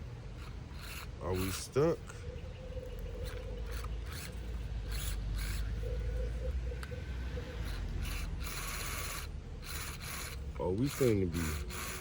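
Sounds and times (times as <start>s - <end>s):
electric motor whining: 2.9s - 6.2s, 6.8s - 12.0s.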